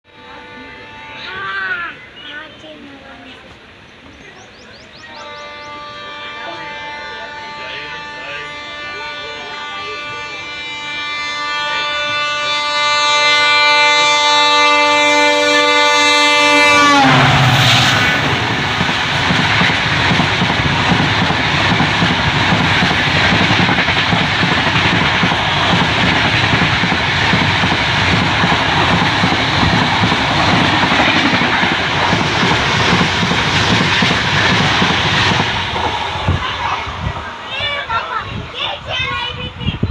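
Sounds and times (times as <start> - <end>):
train horn: 0.0 - 2.0, 5.1 - 20.2
train coaches clattering past: 0.1 - 39.7.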